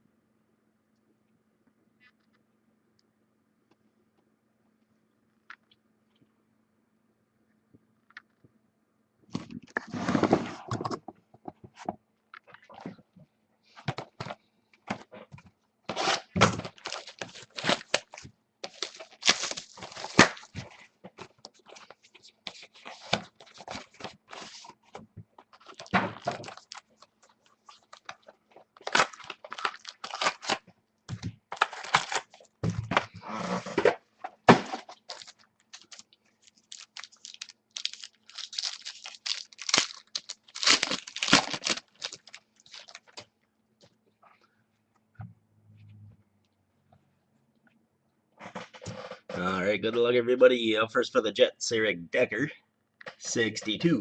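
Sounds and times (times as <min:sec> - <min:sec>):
packaging tearing and crinkling: 0:15.9 - 0:20.8, 0:25.5 - 0:30.6, 0:31.5 - 0:32.5, 0:34.7 - 0:43.3.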